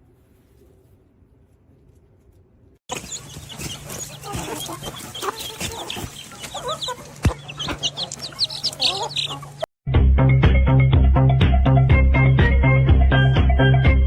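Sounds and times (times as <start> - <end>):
birds chirping: 2.9 - 9.7
birds clucking: 2.9 - 9.7.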